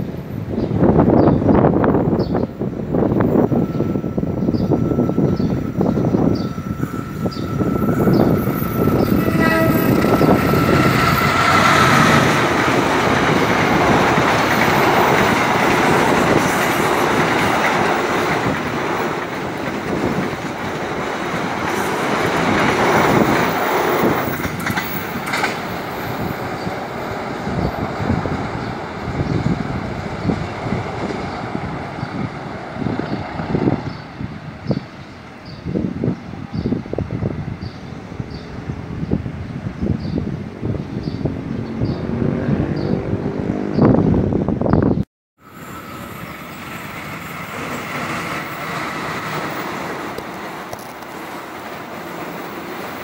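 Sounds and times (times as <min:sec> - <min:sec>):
train rumbling and clattering past: 0:00.0 - 0:44.8, 0:45.4 - 0:53.0
locomotive horn: 0:07.4 - 0:11.4.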